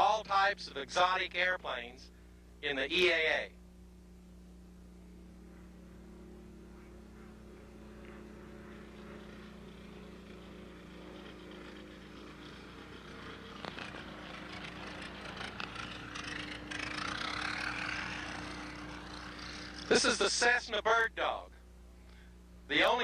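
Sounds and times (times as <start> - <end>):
light airplane engine: 0.0 - 23.0.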